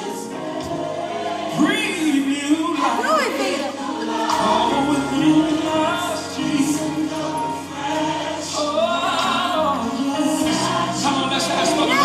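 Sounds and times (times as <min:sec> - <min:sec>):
choir singing gospel song: 0:00.0 - 0:12.0.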